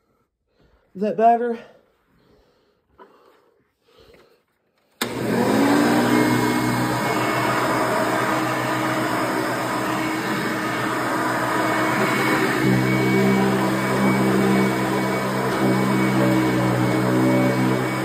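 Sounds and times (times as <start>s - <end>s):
vacuum cleaner running: 5.0s - 18.0s.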